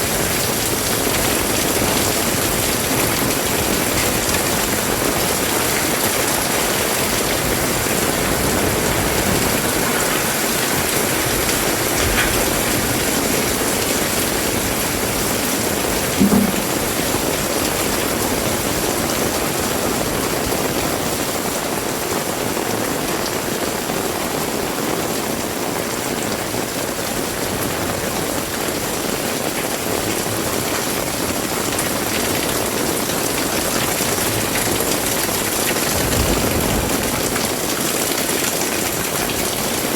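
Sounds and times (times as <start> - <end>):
heavy rain falling: 0.0 - 39.9
low thud: 16.2 - 17.3.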